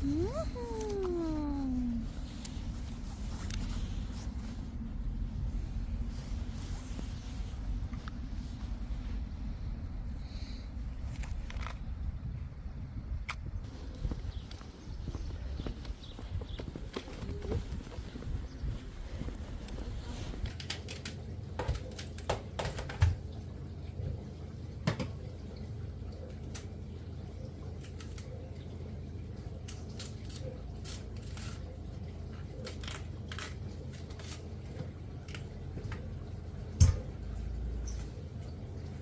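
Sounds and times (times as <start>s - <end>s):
steady low hum: 0.0s - 21.6s.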